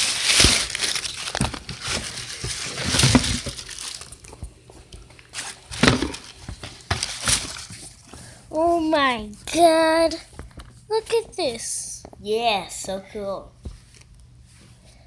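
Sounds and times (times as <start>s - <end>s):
box packaging rustling: 0.0s - 8.1s.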